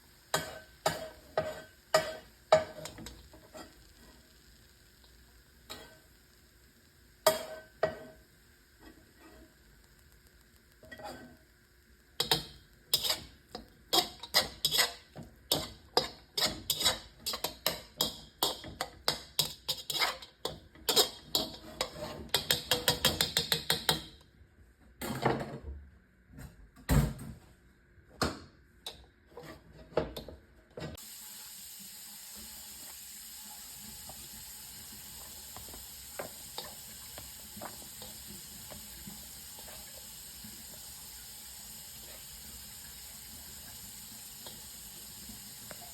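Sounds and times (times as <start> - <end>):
utensil scraping cookware: 0.3 - 4.2, 5.7 - 6.1, 8.8 - 9.6, 10.8 - 11.4, 12.2 - 24.0, 28.9 - 30.3
kitchen tap running: 31.0 - 45.9.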